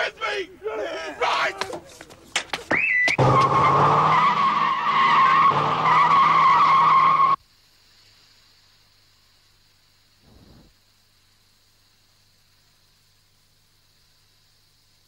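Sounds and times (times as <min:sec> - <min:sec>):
car tyres squealing in a skid: 0:02.7 - 0:07.4.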